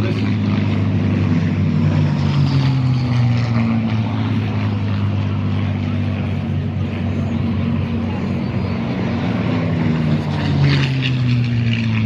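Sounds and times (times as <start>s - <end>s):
propeller plane engine flying past: 0.0s - 12.0s.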